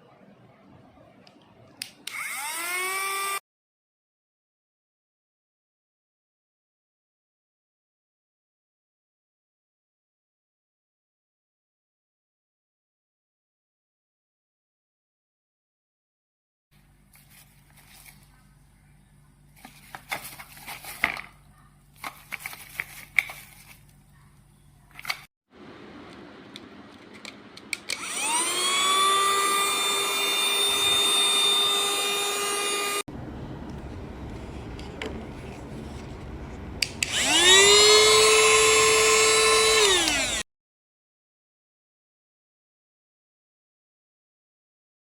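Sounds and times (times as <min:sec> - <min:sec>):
small vacuum motor whining: 0:02.0 - 0:03.4, 0:27.9 - 0:33.0, 0:33.6 - 0:40.4.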